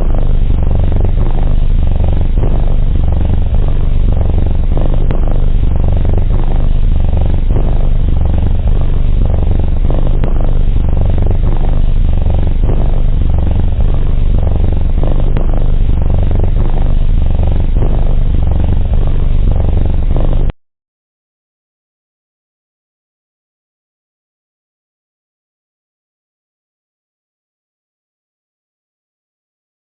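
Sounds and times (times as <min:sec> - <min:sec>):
cat purring: 0:00.0 - 0:20.5.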